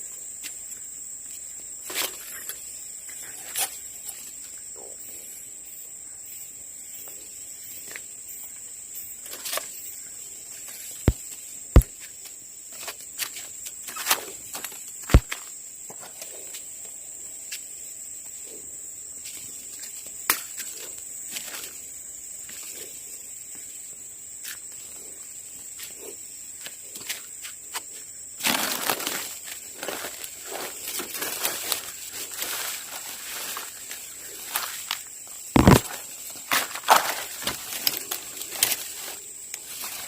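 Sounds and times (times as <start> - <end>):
insects droning: 0.0 - 40.0
rustling and crackling: 28.4 - 40.0.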